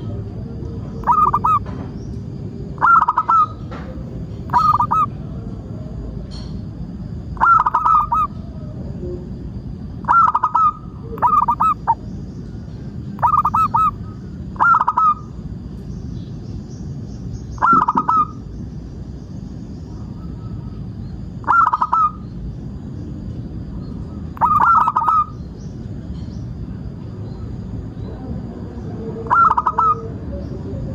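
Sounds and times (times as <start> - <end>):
dove cooing: 0.0 - 1.8, 2.7 - 6.1, 7.3 - 9.2, 10.0 - 12.1, 13.1 - 15.4, 17.6 - 18.5, 20.0 - 22.3, 24.1 - 25.4, 29.0 - 30.9.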